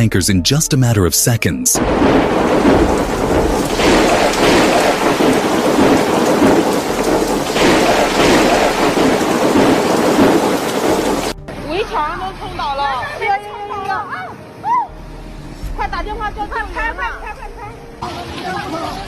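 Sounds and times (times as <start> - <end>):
windstorm with rain rushing: 1.8 - 11.4.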